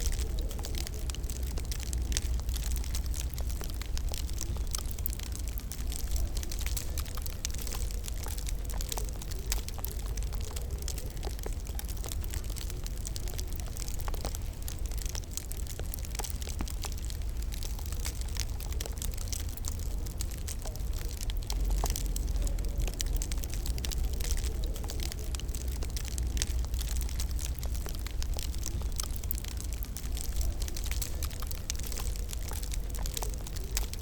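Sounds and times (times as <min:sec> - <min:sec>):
sharp pops and snaps: 0:00.0 - 0:34.0
wood fire crackling: 0:00.0 - 0:34.0.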